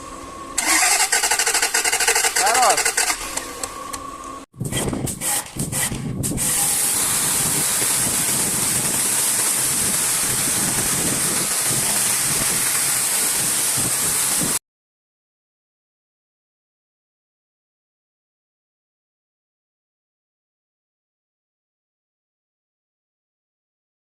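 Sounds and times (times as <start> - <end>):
loud steady hiss of air: 5.2 - 14.6.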